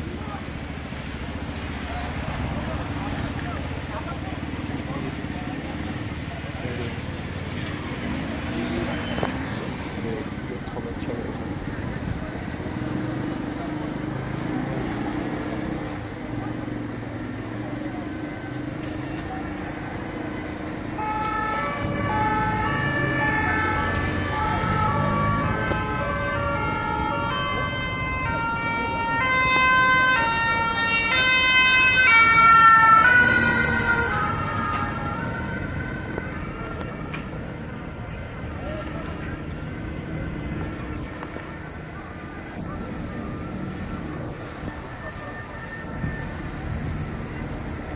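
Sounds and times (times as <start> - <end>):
street traffic noise: 0.0 - 47.9
two-tone emergency siren: 16.8 - 38.0, 38.8 - 47.8.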